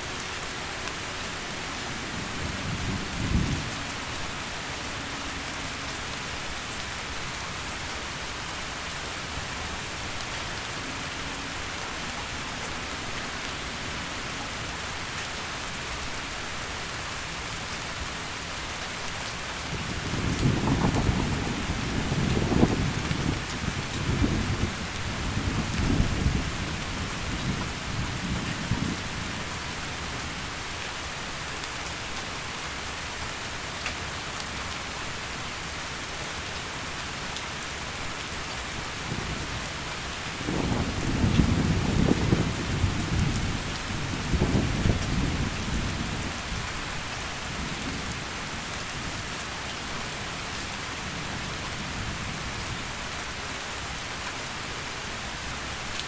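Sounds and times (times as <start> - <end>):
heavy rain falling: 0.0 - 56.0
thunder rumbling: 19.9 - 29.2, 40.4 - 46.6.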